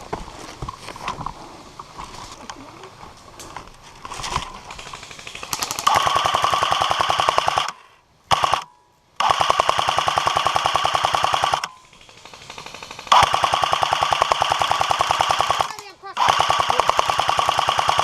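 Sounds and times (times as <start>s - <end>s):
airsoft gun full-auto bursts: 4.8s - 18.0s.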